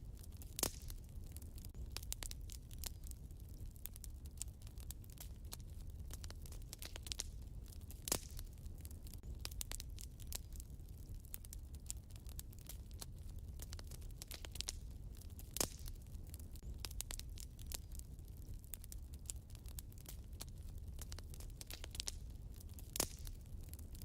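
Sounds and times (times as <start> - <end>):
low fire rumble: 0.0 - 24.0
wood fire crackling: 0.0 - 24.0
loud pop of fire: 0.6 - 1.0.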